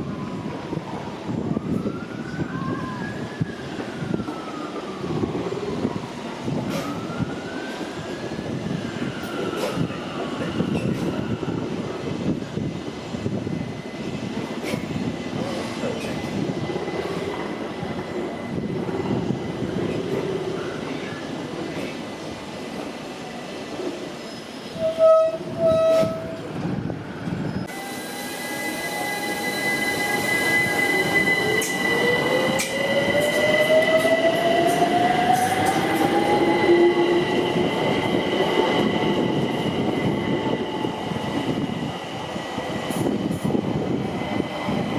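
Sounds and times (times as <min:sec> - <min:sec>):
siren wailing: 0:00.2 - 0:10.7, 0:28.6 - 0:40.7.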